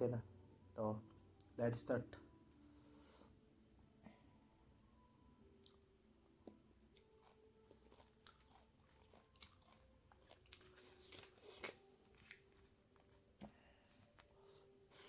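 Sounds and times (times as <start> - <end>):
person chewing food: 5.6 - 15.0.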